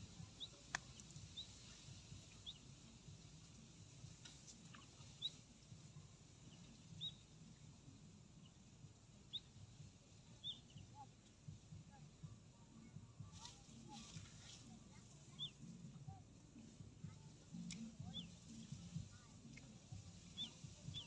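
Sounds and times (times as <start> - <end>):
faint high bird chirps: 4.3 - 7.6, 13.3 - 15.7, 17.6 - 21.0.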